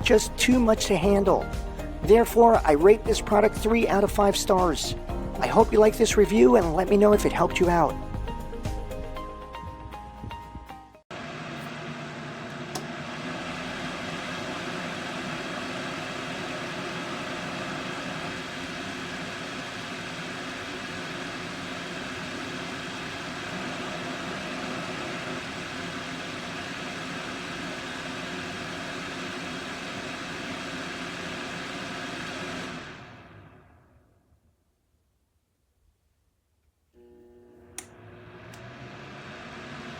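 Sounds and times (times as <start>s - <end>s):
heater fan blowing: 5.4s - 34.1s, 37.0s - 39.9s.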